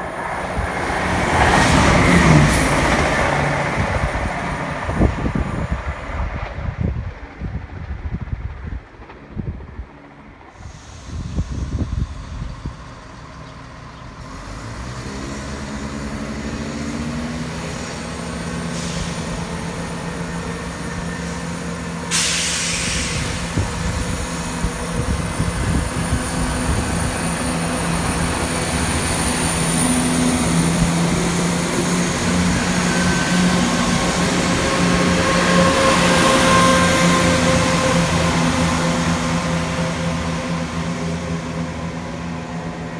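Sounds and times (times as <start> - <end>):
diesel train engine: 0.0 - 42.9
air brake hiss: 10.5 - 12.7, 18.6 - 19.8, 21.1 - 24.4.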